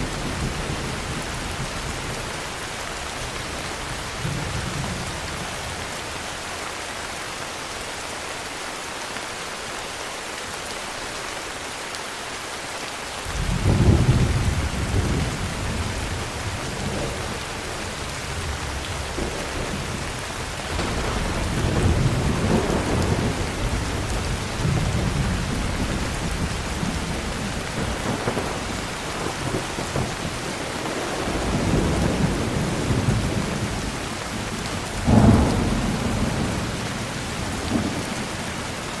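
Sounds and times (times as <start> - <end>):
heavy rain hissing: 0.0 - 39.0
thunder rumbling: 13.3 - 39.0.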